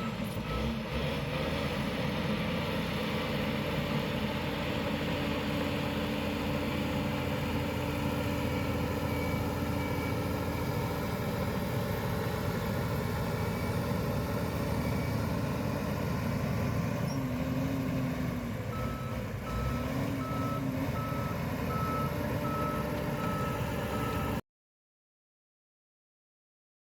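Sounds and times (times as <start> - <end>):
diesel engine running: 0.0 - 24.4
reversing alarm beeping: 8.1 - 11.1, 18.7 - 24.4.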